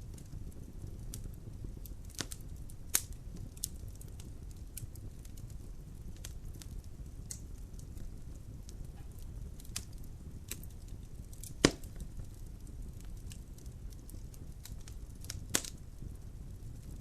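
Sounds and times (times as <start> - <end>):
fire crackling: 0.0 - 17.0
fire rumbling in fireplace: 0.0 - 17.0
loud pop from fire: 0.1 - 5.5, 8.8 - 15.8.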